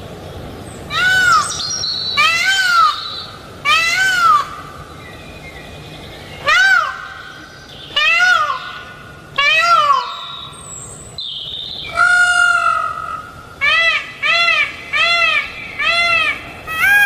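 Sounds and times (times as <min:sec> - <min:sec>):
animal calling: 0:11.9 - 0:17.0.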